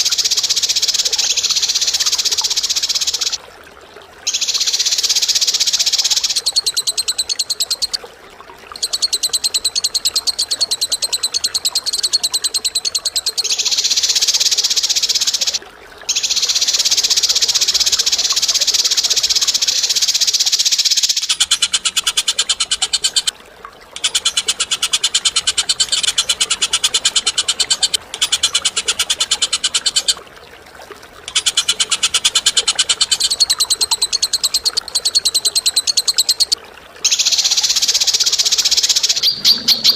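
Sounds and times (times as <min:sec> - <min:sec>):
bird's harsh rapid rattling trill: 0:00.0 - 0:03.4, 0:08.8 - 0:23.3, 0:24.0 - 0:30.2, 0:31.3 - 0:39.9.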